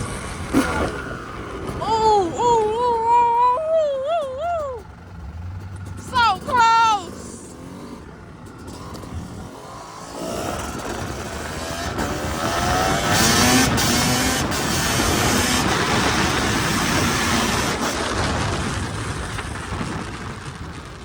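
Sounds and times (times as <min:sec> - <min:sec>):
dirt bike engine accelerating: 0:00.0 - 0:21.0
wind noise on microphone: 0:10.2 - 0:21.0.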